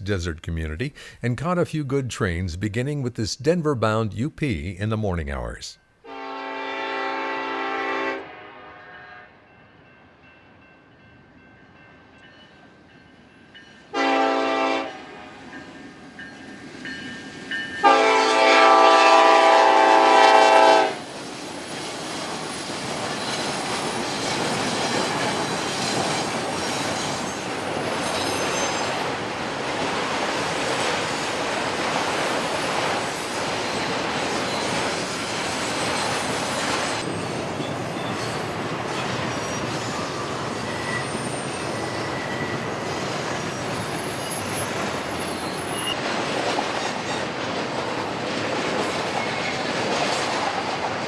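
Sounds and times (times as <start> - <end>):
locomotive air horn blasts: 6.1 - 9.3, 14.0 - 15.2, 17.8 - 21.0
train wheels on rails: 18.7 - 51.0.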